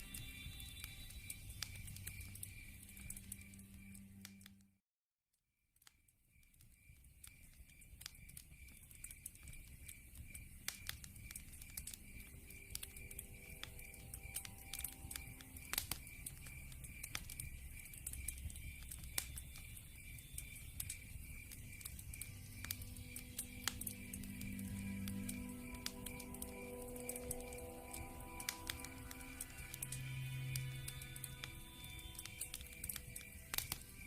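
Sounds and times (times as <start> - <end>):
log fire crackling and popping: 0.0 - 4.5, 5.8 - 34.0
high chirping: 11.7 - 34.0.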